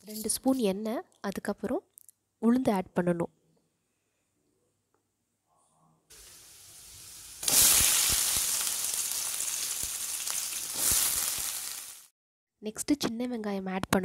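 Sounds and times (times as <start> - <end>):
oil sizzling: 6.1 - 12.1.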